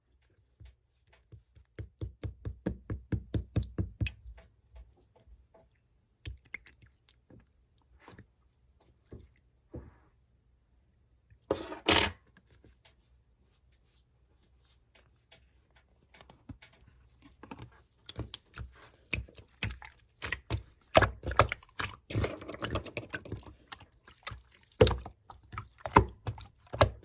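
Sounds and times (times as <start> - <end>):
slime squelching: 6.2 - 9.6, 17.1 - 27.0.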